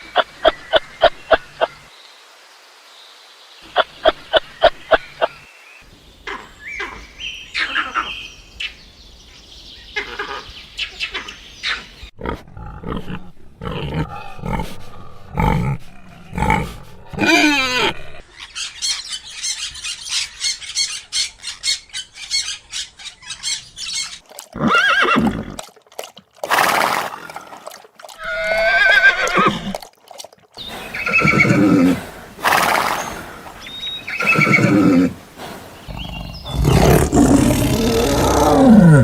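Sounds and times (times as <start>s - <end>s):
horse whinnying: 24.6s - 25.6s, 28.2s - 29.8s, 30.9s - 33.3s, 34.0s - 35.2s.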